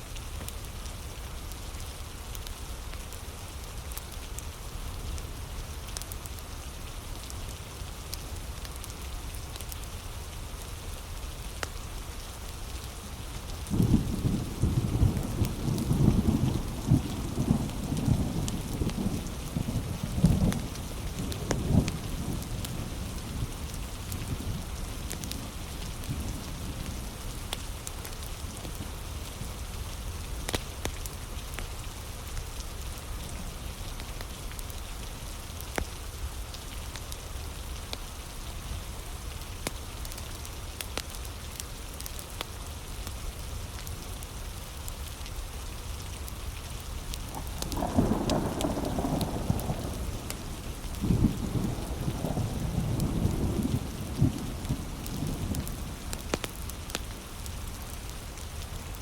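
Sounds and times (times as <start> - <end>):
heavy rain: 0.0 - 59.0
wood fire crackling and popping: 47.1 - 59.0.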